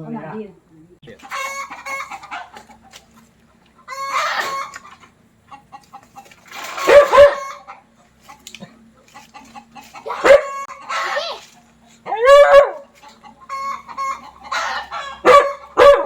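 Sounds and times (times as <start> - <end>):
chickens clucking: 1.0 - 16.0
loud pitched chicken calls: 1.2 - 3.0, 3.8 - 8.4, 9.2 - 16.0.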